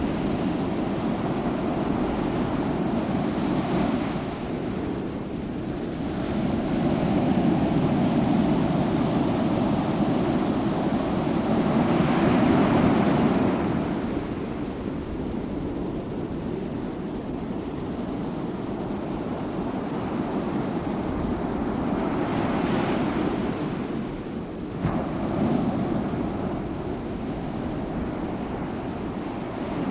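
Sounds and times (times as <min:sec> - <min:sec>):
sea waves washing onto shore: 0:00.0 - 0:15.7, 0:18.0 - 0:29.9.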